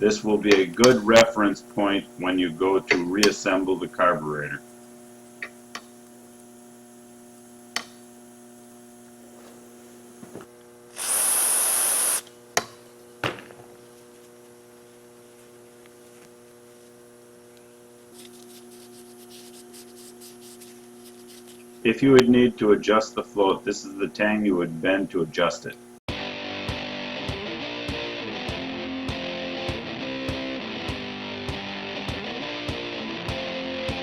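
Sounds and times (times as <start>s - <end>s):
electrical mains hum: 0.0s - 26.0s
loud hiss: 10.9s - 12.2s.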